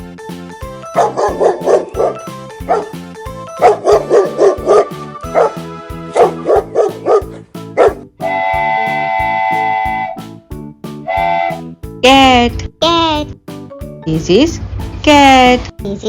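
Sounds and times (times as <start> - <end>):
children's background music: 0.0 - 16.0
dog barking: 1.0 - 2.9, 3.6 - 8.1.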